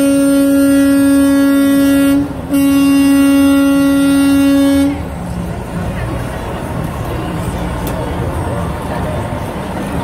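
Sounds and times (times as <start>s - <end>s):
truck air horn blasts: 0.0s - 5.2s.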